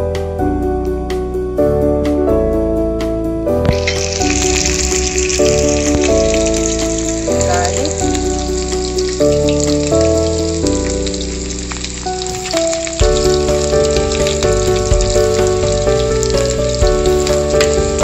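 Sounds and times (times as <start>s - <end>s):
background music of held notes: 0.0s - 18.0s
onions sizzling in hot oil: 3.7s - 18.0s.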